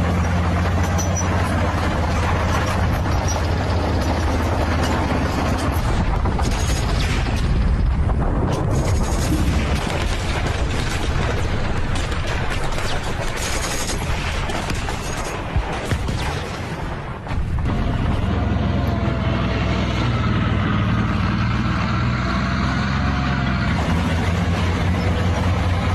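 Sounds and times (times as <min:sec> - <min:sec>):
low rumble: 0:00.0 - 0:25.9
explosions: 0:05.6 - 0:18.5
gunfire: 0:06.0 - 0:18.3.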